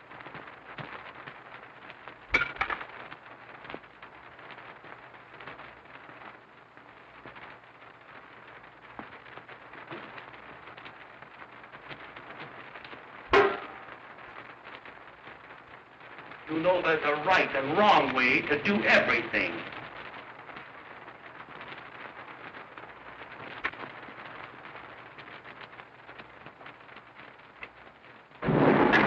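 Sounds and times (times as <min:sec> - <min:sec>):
film soundtrack hiss and crackle: 0:00.0 - 0:29.0
sharp impacts with ringing: 0:13.3 - 0:13.8.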